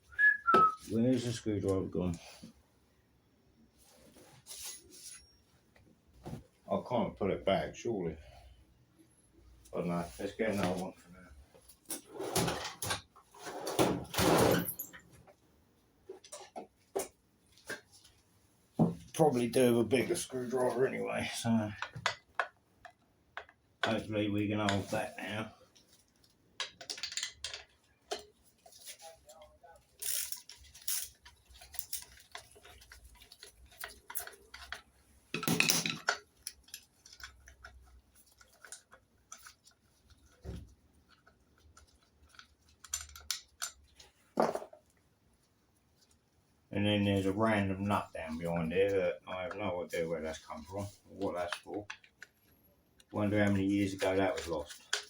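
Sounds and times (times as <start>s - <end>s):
tool drawer sliding open: 12.0s - 14.8s.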